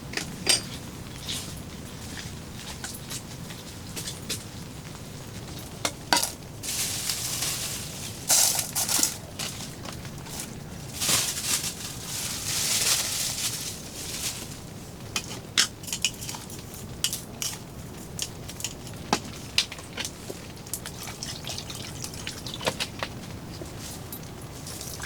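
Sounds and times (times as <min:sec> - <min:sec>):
rain hissing: 0:06.5 - 0:09.2.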